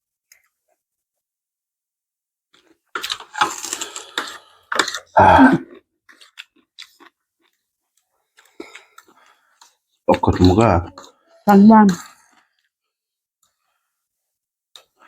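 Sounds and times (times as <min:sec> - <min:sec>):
crunching and chewing: 0:02.5 - 0:11.3, 0:11.9 - 0:13.7, 0:14.7 - 0:15.0.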